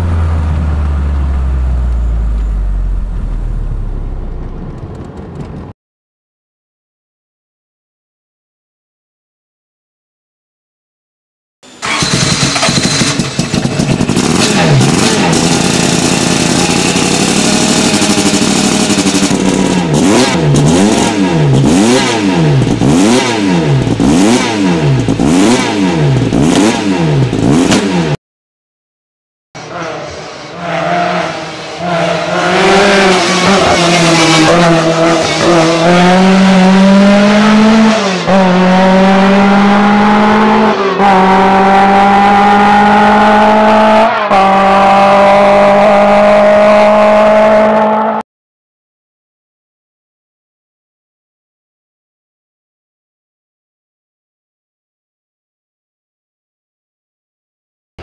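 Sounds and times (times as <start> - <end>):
car engine accelerating hard: 11.8 - 28.2, 29.6 - 48.2
car engine revving: 11.8 - 28.2, 29.6 - 48.2.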